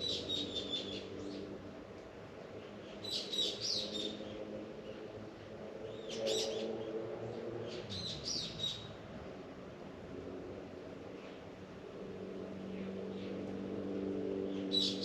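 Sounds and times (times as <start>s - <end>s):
songbirds chirping: 0.0s - 9.0s.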